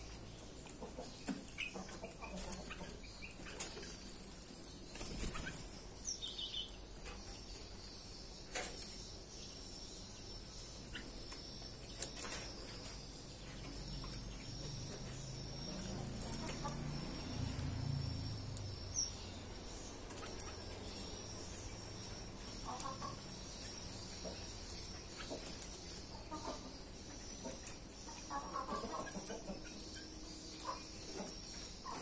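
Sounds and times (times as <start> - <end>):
birds calling: 0.0 - 32.0.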